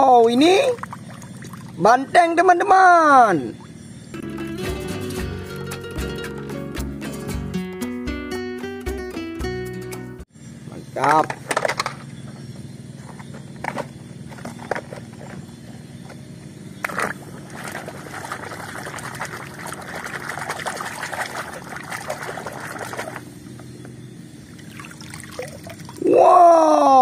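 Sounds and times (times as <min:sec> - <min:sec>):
water sloshing and trickling: 0:00.1 - 0:02.1, 0:16.8 - 0:23.4, 0:24.4 - 0:26.0.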